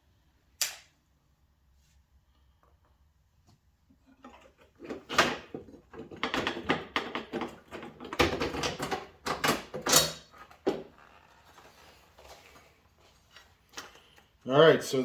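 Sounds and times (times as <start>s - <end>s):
plastic knocking and scraping on metal: 4.0s - 10.9s.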